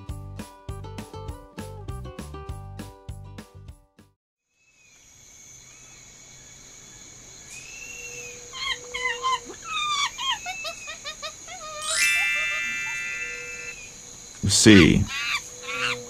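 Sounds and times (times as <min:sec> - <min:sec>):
chimpanzee hoots and squeals: 0:07.8 - 0:14.0, 0:14.8 - 0:16.0
chimpanzee screaming: 0:07.9 - 0:14.0, 0:14.7 - 0:16.0
steady high drone: 0:12.0 - 0:15.1.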